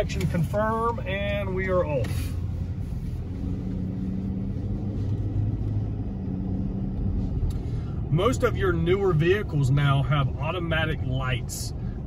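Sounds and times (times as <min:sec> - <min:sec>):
vehicle engine and road drone: 0:00.0 - 0:12.0.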